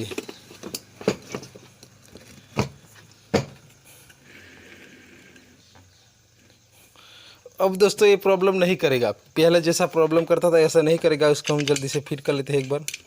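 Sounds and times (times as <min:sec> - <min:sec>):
metal parts knocking: 0:10.1 - 0:13.0
plastic clicks: 0:11.0 - 0:13.0.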